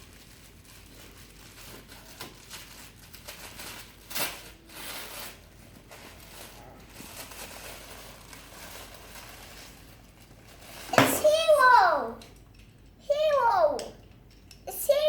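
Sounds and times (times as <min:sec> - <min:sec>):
packaging crinkling and tearing: 0:00.0 - 0:10.9.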